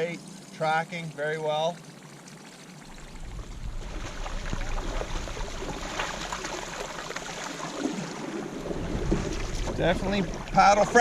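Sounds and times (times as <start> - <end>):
low rumble: 2.9 - 7.1
paddle splashing in water: 2.9 - 11.0.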